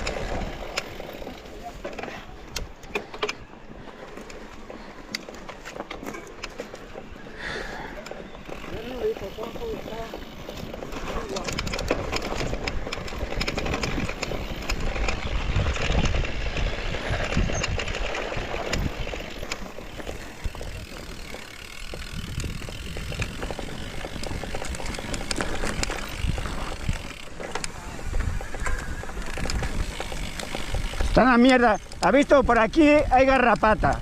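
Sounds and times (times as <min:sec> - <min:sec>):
wind rumbling on microphone: 0:00.0 - 0:02.8, 0:07.3 - 0:34.0
bike clicks and rattles: 0:00.0 - 0:34.0
bike tyre noise on dirt: 0:00.0 - 0:34.0.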